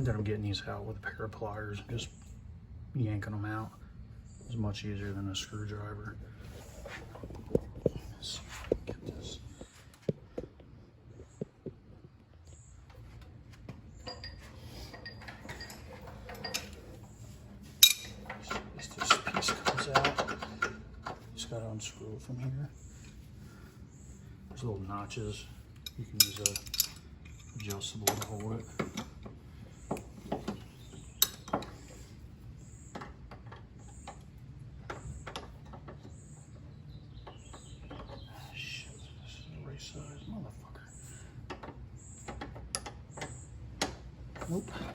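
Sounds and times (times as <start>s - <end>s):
hand tools clicking and scraping: 13.9s - 21.2s, 25.3s - 32.2s
wrench clinking on metal fitting: 17.8s - 20.8s, 25.8s - 29.1s, 31.2s - 31.7s
bird chirping: 27.3s - 33.2s, 33.8s - 41.4s.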